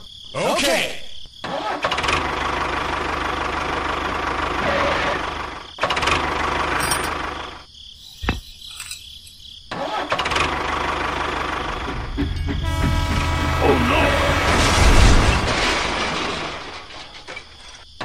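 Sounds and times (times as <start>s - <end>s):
tractor engine running: 1.6s - 7.6s, 9.8s - 15.6s.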